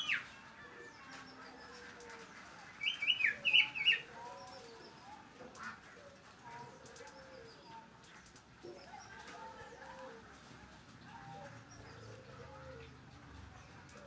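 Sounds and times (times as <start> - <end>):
small songbird chirping: 2.8 - 4.9.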